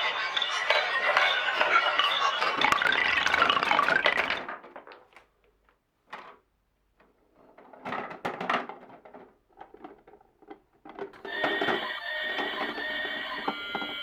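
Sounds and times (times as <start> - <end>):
marbles rolling on wooden run: 0.0 - 4.6.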